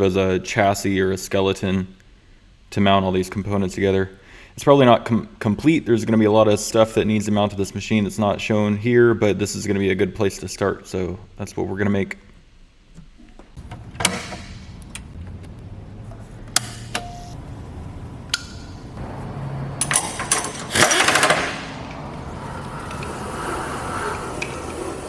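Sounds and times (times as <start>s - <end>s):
low machine hum: 13.6s - 20.8s, 21.6s - 25.0s.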